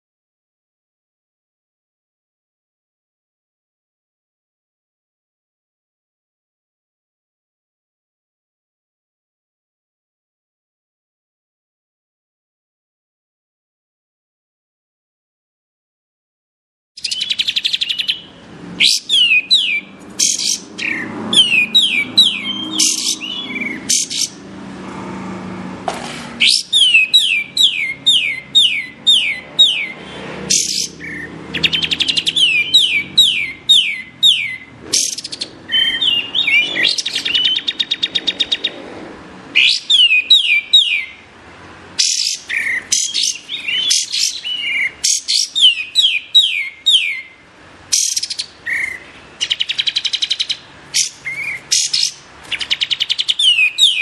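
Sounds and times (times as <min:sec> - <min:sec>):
bird singing falling whistled notes: 0:17.0 - 0:18.2, 0:18.8 - 0:24.4, 0:26.4 - 0:38.8, 0:39.6 - 0:41.2, 0:42.0 - 0:47.3, 0:48.0 - 0:54.0.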